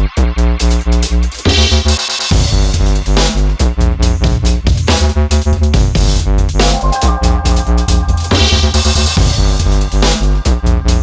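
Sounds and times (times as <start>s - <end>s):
electronic music with heavy bass: 6.6s - 8.8s.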